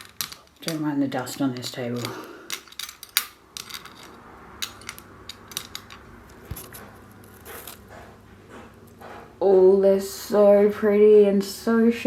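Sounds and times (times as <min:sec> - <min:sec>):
metal rings clicking: 0:00.0 - 0:07.8.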